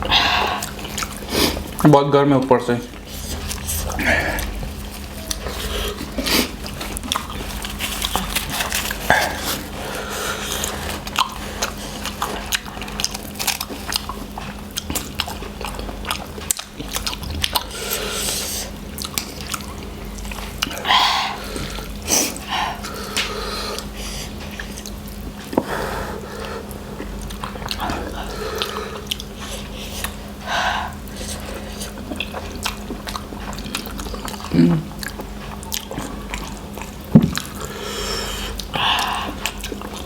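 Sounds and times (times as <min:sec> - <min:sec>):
people chewing noodles: 0:00.0 - 0:40.0
low hum: 0:15.6 - 0:24.2.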